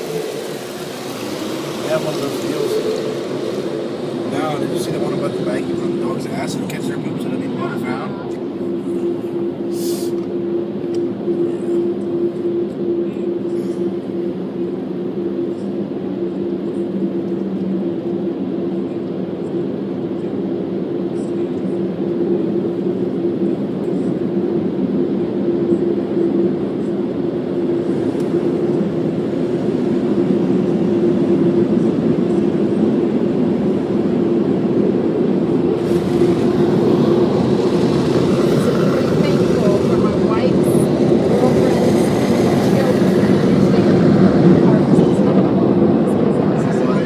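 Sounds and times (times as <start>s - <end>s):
rushing water noise: 0.0s - 5.3s, 35.8s - 40.2s
car wash machinery hum: 0.0s - 47.0s.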